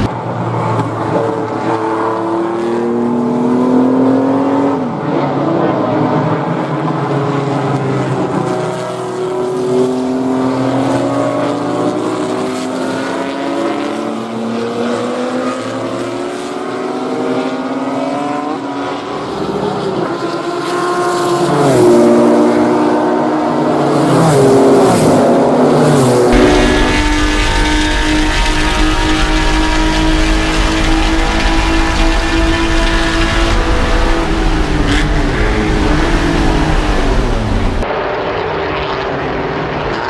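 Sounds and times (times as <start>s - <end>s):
race car engine at full throttle: 0.0s - 40.0s.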